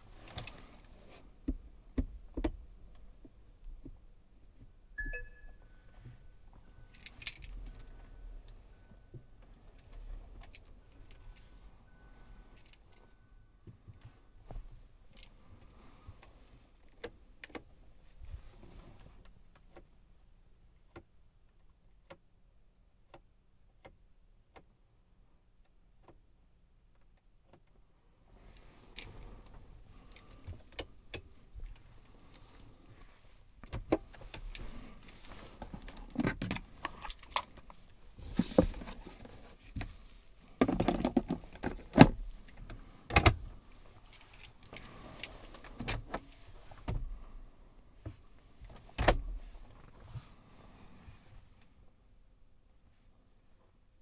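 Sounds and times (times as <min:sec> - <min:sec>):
clicks and rustles: 0:28.6 - 0:47.0.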